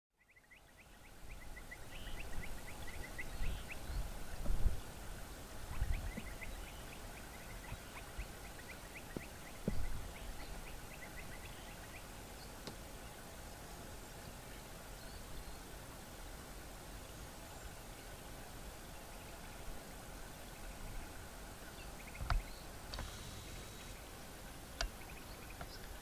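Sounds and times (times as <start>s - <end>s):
outdoor ambience: 0.1s - 26.0s
bird chirping rapidly: 5.7s - 12.1s.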